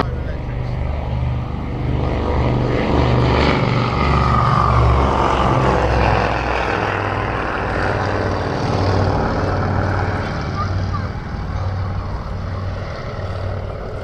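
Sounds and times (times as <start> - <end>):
propeller aircraft passing: 0.0 - 14.0.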